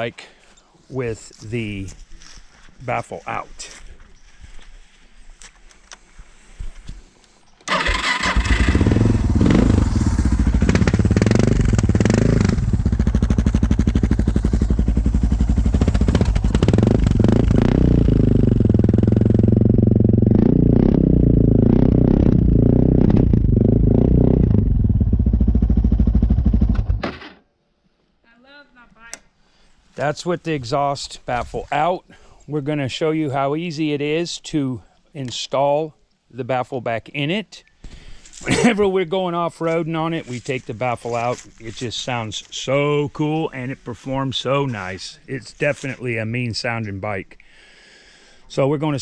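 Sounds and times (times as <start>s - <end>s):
motorcycle engine revving: 7.7s - 27.0s.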